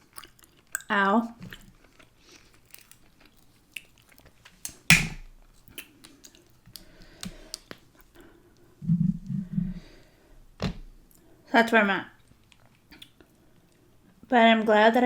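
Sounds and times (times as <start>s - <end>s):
chewing with wet clicks: 0.0s - 8.7s, 12.2s - 13.9s
sharp mouth smack: 4.7s - 5.2s.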